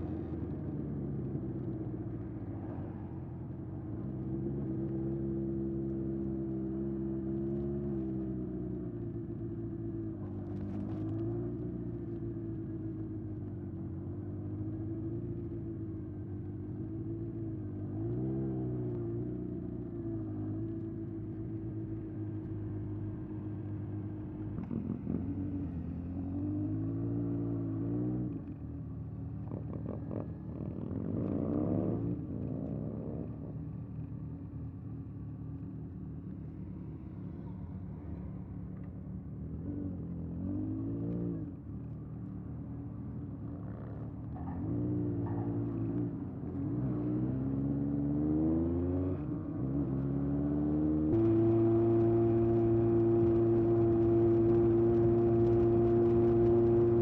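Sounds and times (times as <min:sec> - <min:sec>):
motorcycle engine accelerating: 0:43.2 - 0:57.0.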